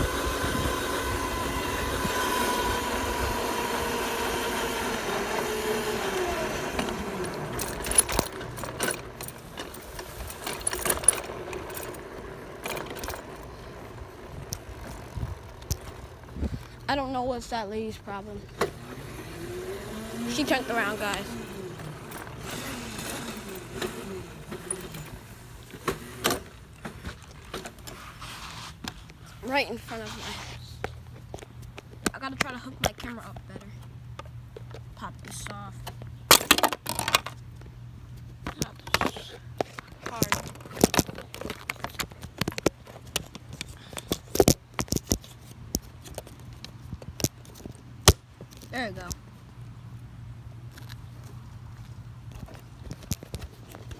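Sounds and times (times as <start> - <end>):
low vehicle noise: 0.0 - 32.1.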